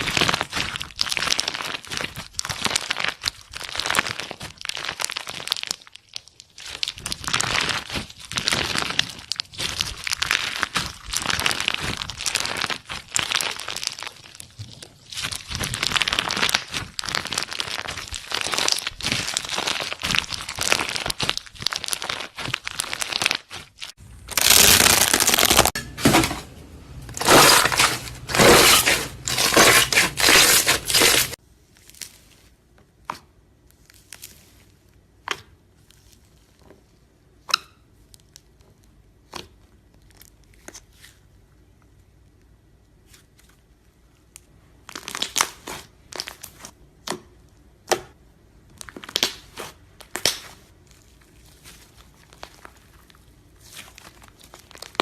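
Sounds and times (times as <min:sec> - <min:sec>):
slime crackling: 0:00.0 - 0:25.8, 0:48.8 - 0:55.0.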